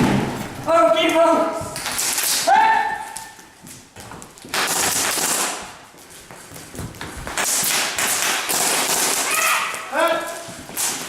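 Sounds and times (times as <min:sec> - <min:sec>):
airsoft guns firing bursts: 0:04.5 - 0:05.6, 0:07.4 - 0:09.4.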